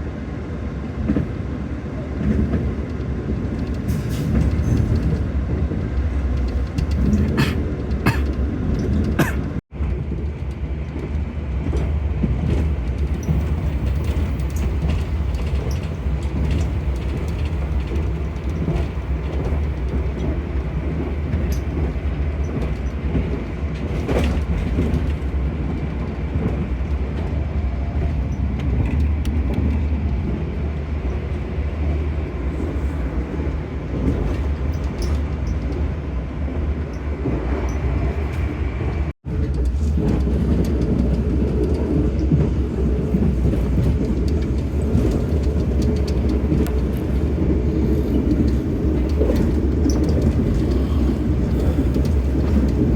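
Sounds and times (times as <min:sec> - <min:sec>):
train rumbling: 0:00.0 - 0:52.9.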